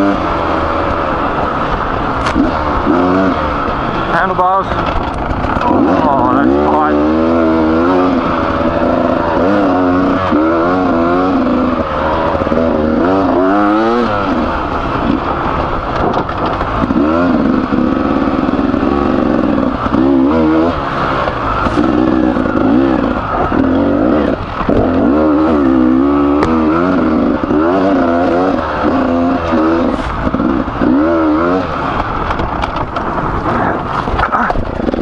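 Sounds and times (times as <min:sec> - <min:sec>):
motorcycle engine revving: 0:00.0 - 0:35.0
motorcycle knocking over rough ground: 0:15.8 - 0:17.6, 0:31.9 - 0:35.0.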